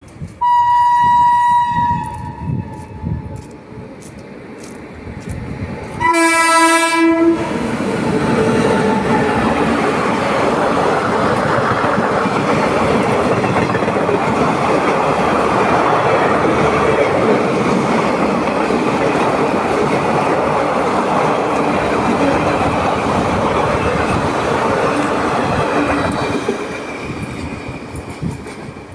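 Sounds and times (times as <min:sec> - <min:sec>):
train coaches rumbling on track: 0:00.0 - 0:28.9
train horn blast: 0:00.4 - 0:03.3, 0:06.0 - 0:07.6.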